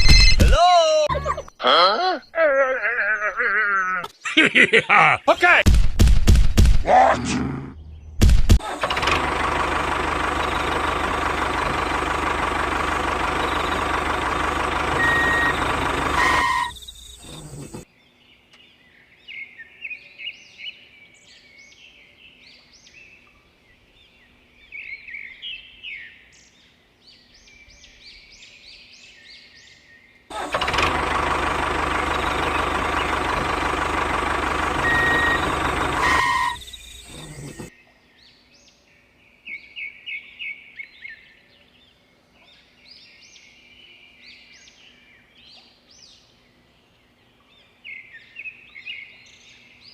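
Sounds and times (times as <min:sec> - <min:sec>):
birds chirping: 0:00.0 - 0:05.6, 0:06.9 - 0:20.3, 0:30.1 - 0:38.0
loud mechanical running noise: 0:08.2 - 0:17.8, 0:30.3 - 0:37.7.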